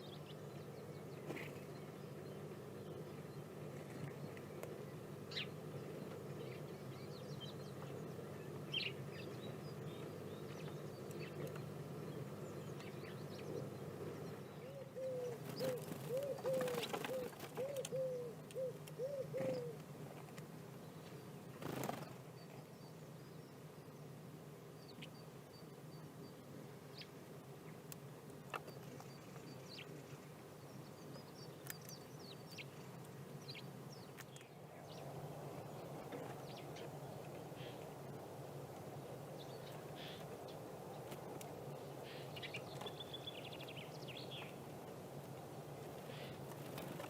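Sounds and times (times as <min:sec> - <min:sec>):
bird calling low arched notes: 0:14.6 - 0:19.8.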